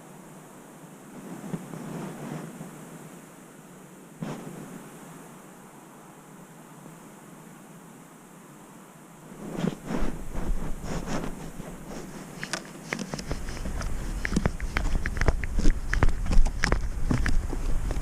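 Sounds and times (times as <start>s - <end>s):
paws crunching in snow: 9.4s - 18.0s.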